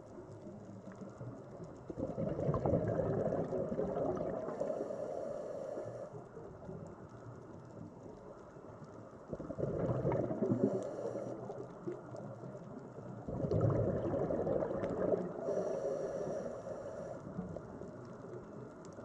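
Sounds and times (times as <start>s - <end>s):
sea water rushing: 9.4s - 11.7s, 13.4s - 17.3s.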